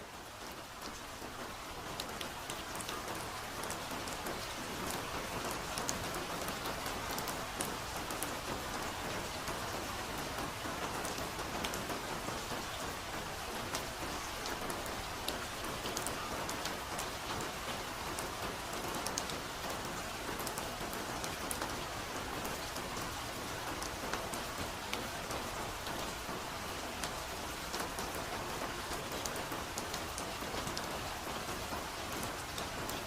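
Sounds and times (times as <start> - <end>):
soft steady rainfall: 0.0 - 33.0.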